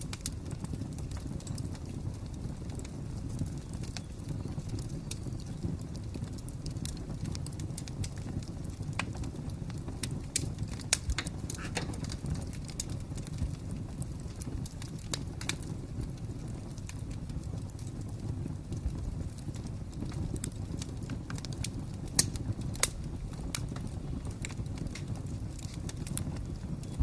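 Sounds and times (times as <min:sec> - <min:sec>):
wood fire crackling: 0:00.0 - 0:27.0
sharp pops and snaps: 0:10.0 - 0:13.5.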